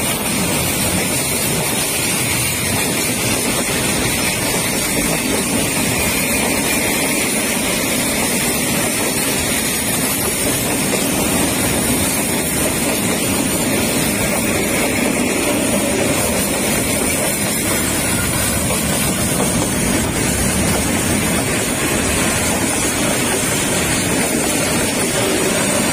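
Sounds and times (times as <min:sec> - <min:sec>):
train wheels running on rails: 0:00.0 - 0:25.9.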